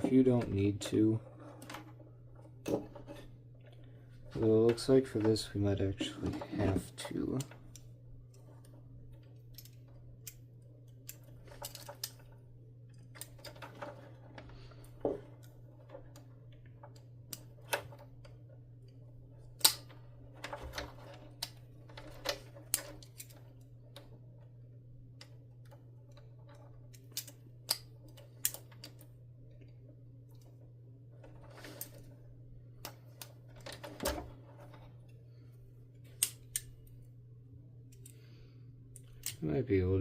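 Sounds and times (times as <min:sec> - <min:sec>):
wiring rustling: 0:00.0 - 0:37.2
steady low hum: 0:00.0 - 0:40.0
plastic connectors clicking: 0:19.6 - 0:19.9, 0:26.9 - 0:29.1.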